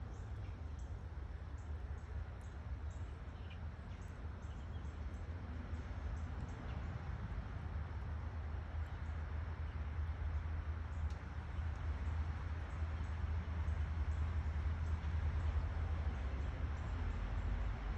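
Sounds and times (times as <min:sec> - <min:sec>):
faint small ticks: 0:11.0 - 0:11.9.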